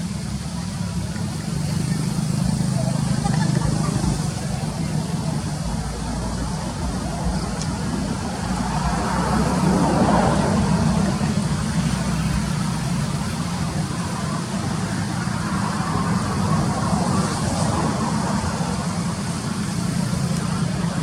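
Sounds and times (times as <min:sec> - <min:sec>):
road traffic noise: 0:00.0 - 0:21.0
vehicle engine humming: 0:00.0 - 0:21.0.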